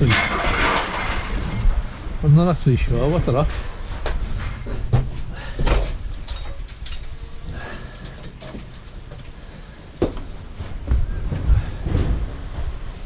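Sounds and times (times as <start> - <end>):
scrap metal clinking and rattling: 0.0 - 2.2, 3.0 - 9.5.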